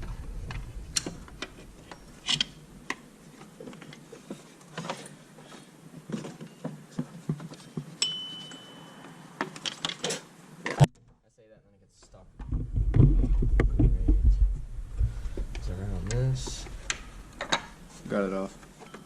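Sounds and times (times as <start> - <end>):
sharp metal ping ringing: 8.0 - 9.0.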